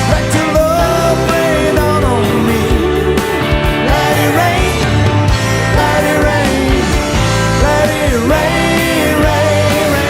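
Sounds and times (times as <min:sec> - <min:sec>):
rock band playing live: 0:00.0 - 0:10.0
lead guitar line bending in pitch: 0:01.2 - 0:07.7.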